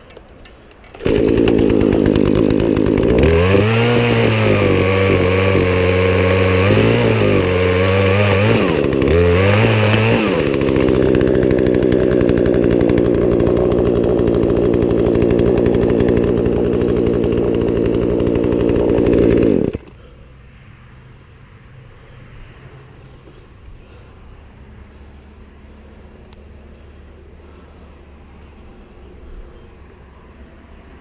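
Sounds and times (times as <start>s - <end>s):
chainsaw running: 0.0s - 20.1s.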